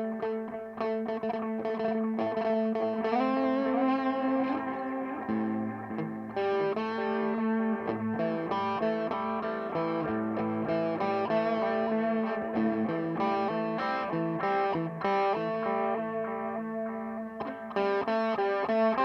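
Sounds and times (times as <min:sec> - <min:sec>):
electric guitar melodic run: 0:00.0 - 0:19.0.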